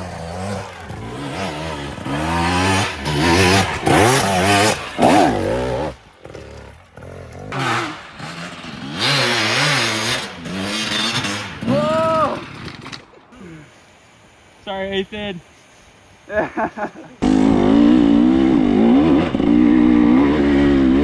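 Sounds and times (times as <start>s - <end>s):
dirt bike engine revving: 0.0s - 12.9s, 17.2s - 21.0s.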